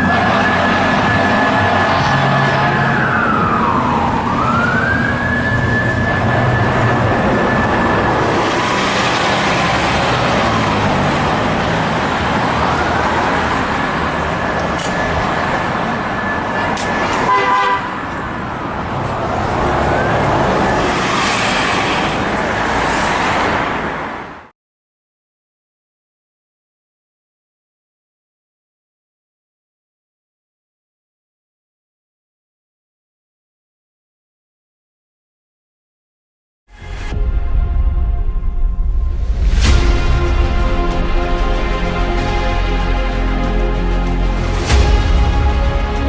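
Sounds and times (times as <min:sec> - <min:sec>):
fire truck siren wailing: 0:00.0 - 0:24.5, 0:39.6 - 0:46.0
truck engines rumbling: 0:00.0 - 0:24.5, 0:39.4 - 0:46.0
short horn blast: 0:17.2 - 0:18.1.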